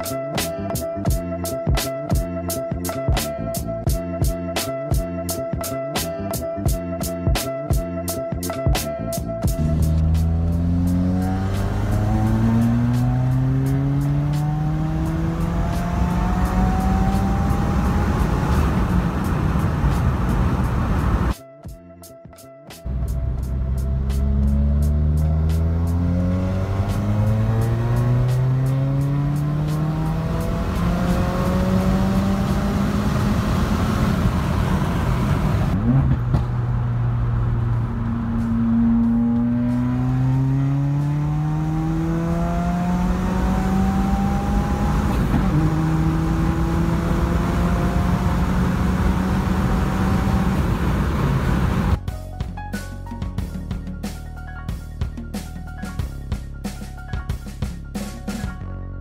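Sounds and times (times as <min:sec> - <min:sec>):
car engine revving: 0:09.5 - 0:21.3, 0:22.9 - 0:52.0.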